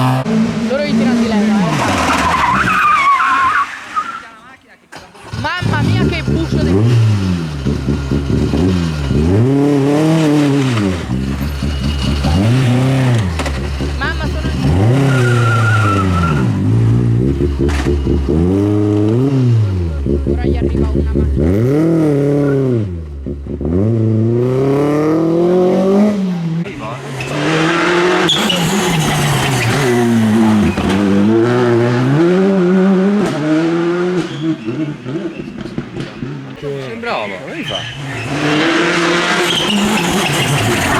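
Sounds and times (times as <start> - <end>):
rally car engine revving: 0.0 - 4.3, 4.9 - 40.9
tyre noise: 25.6 - 40.9.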